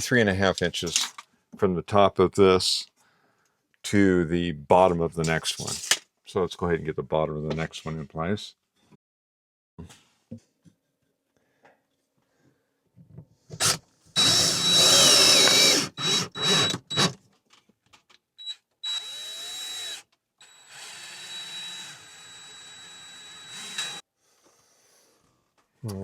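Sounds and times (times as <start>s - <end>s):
power drill whining: 13.6s - 17.2s, 18.4s - 24.0s.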